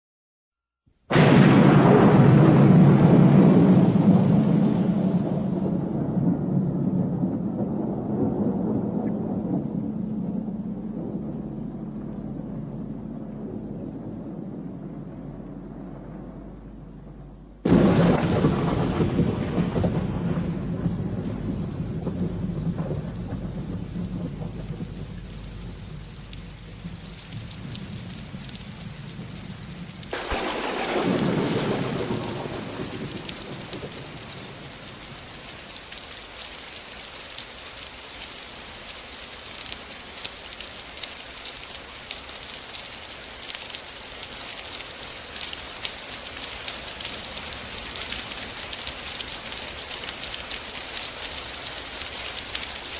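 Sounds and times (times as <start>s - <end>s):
thunder crack: 1.1s - 35.4s
thunder rumbling: 1.1s - 38.9s
rain falling: 1.1s - 52.9s.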